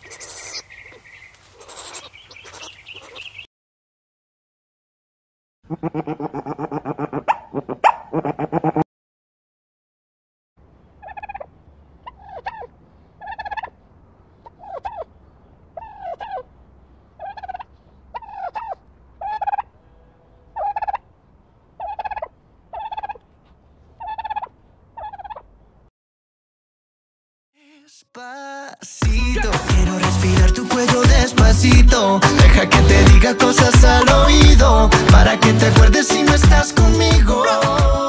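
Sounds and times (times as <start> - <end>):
turkey gobbling: 0.5 - 3.5, 5.7 - 8.8, 11.0 - 13.8, 14.4 - 15.1, 15.8 - 16.5, 17.2 - 21.1, 21.8 - 25.6.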